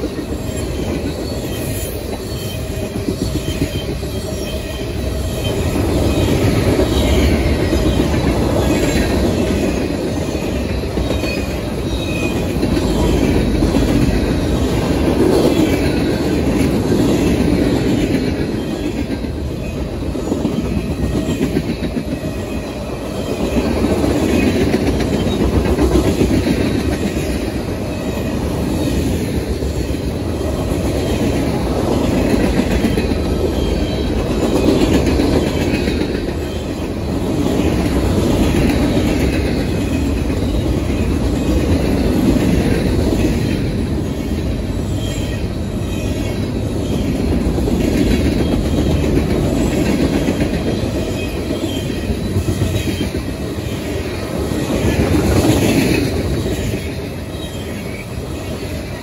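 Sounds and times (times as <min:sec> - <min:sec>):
high wheel squeal: 0:00.3 - 0:13.2.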